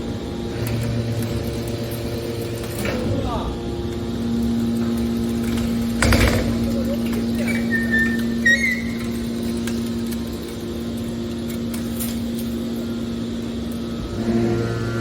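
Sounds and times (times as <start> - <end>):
hydraulic unit humming: 0.0 - 15.0
short high squeal: 7.6 - 9.2.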